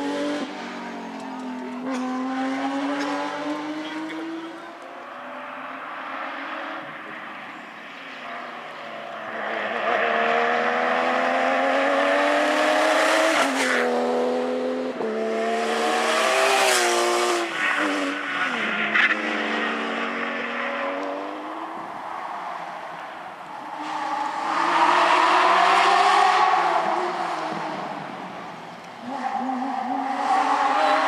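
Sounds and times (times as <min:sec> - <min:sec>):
rally car engine accelerating: 0:00.0 - 0:07.5, 0:08.7 - 0:21.9.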